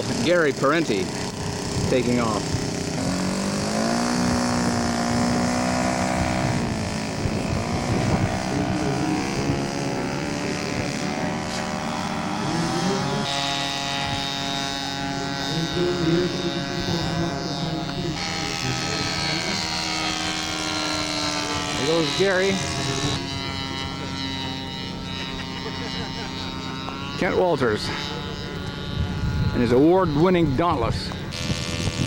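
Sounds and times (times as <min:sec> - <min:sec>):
model aircraft engines running: 0:00.0 - 0:32.0.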